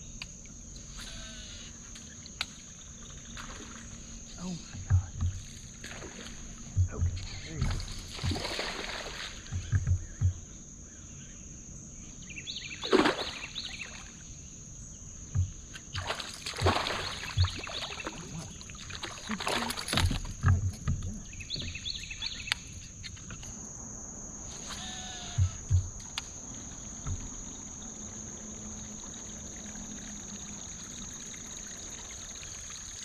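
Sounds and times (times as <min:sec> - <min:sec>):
high insect drone: 0:00.0 - 0:33.0
paddle swishing through water: 0:03.1 - 0:10.2, 0:15.9 - 0:21.8
low knocks on kayak hull: 0:04.8 - 0:08.6, 0:09.4 - 0:10.6, 0:15.2 - 0:15.7, 0:17.3 - 0:17.8, 0:19.9 - 0:22.0, 0:25.3 - 0:26.2, 0:26.9 - 0:27.7.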